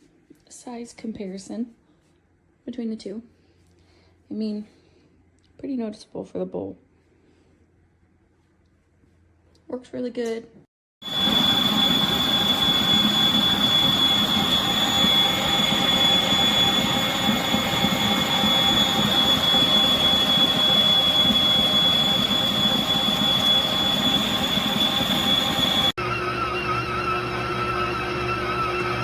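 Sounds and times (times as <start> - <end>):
stand mixer motor whining: 11.0 - 29.0.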